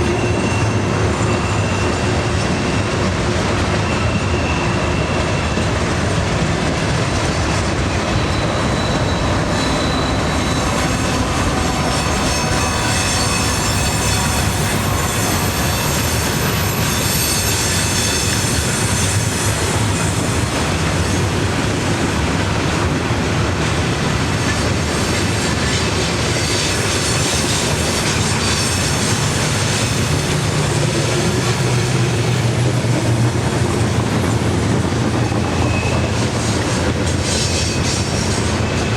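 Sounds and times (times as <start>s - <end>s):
high-pitched wheel squeal: 0.0s - 2.9s, 3.8s - 5.7s, 8.0s - 20.2s, 25.4s - 32.8s, 35.2s - 38.9s
train rail rumble: 0.0s - 38.9s.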